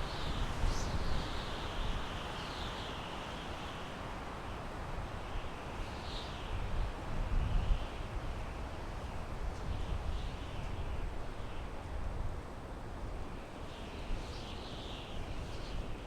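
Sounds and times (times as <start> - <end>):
wind through pine trees: 0.0 - 16.0.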